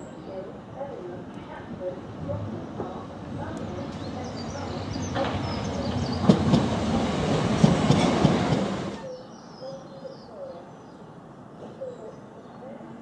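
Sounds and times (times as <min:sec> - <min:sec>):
passenger train moving: 0:00.0 - 0:09.4.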